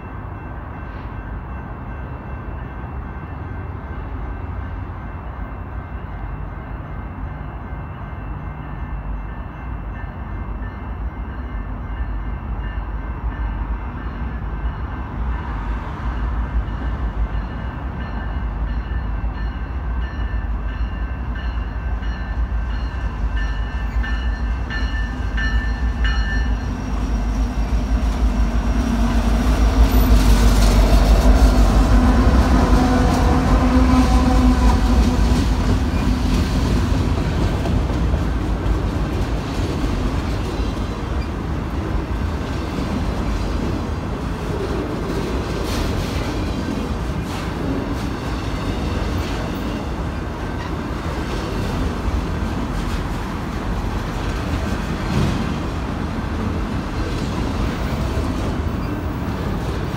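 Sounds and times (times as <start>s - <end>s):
train passing: 0.0s - 59.9s
train horn: 31.4s - 35.7s.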